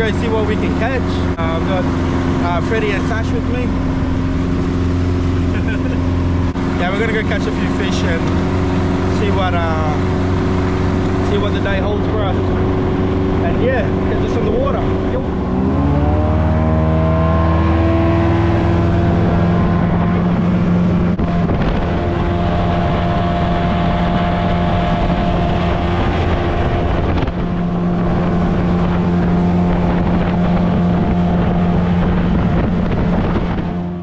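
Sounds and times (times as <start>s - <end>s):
boat motor running: 0.0s - 34.0s
wind noise on microphone: 0.0s - 34.0s.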